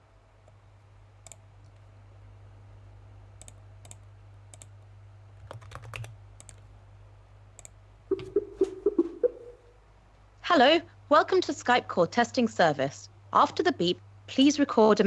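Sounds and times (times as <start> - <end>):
low electrical hum: 0.0 - 15.0
keyboard and mouse clicks: 1.2 - 1.9, 3.4 - 6.7, 7.6 - 9.1.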